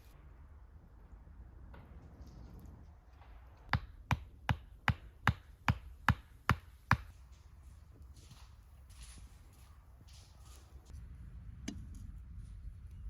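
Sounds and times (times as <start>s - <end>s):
hand tool striking wood: 3.7s - 7.1s.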